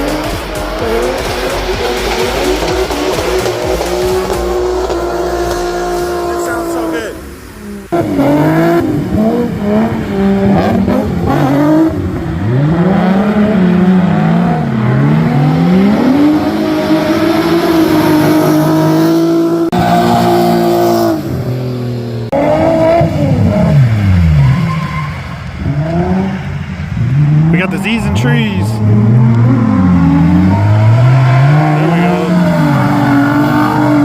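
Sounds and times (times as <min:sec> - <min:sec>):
car engines revving: 0:00.0 - 0:34.0
tyre squeal: 0:24.4 - 0:25.4.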